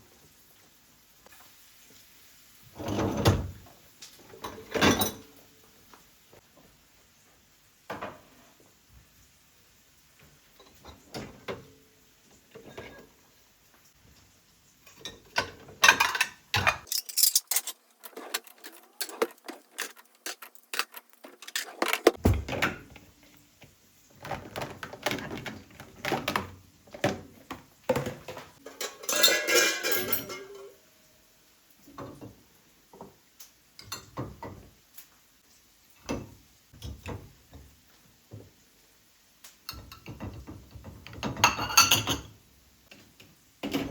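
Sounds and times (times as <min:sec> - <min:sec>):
dishes and pots clinking: 0:04.4 - 0:05.4, 0:12.5 - 0:13.2, 0:14.8 - 0:23.1, 0:24.4 - 0:30.8, 0:39.7 - 0:42.4.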